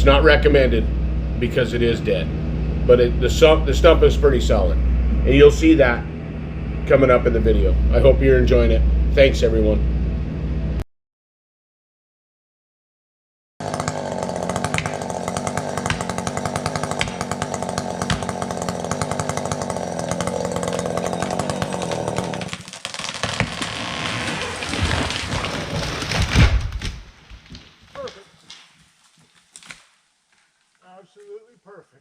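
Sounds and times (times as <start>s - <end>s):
chainsaw cutting: 0.0s - 9.4s, 13.6s - 30.6s
tree cracking and rushing: 13.6s - 30.8s
tree hitting the ground: 13.6s - 30.8s.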